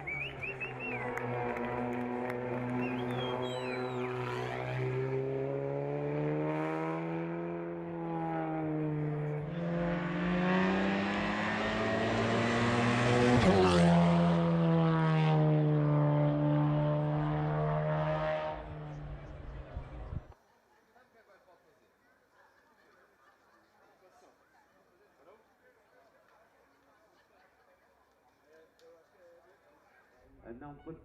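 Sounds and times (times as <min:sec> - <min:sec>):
race car engine accelerating: 0:00.0 - 0:20.3.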